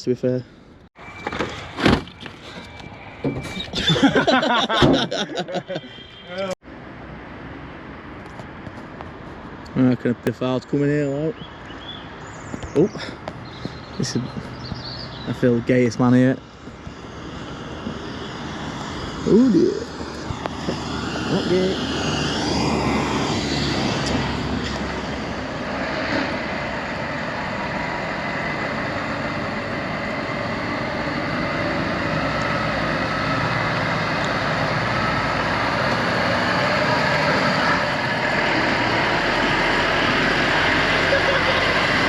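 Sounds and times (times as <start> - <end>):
truck diesel engine running: 25.2 - 42.0.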